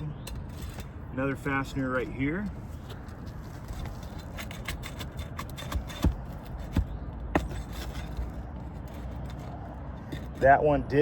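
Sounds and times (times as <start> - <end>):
nail scraping out of shingle: 2.8 - 10.5.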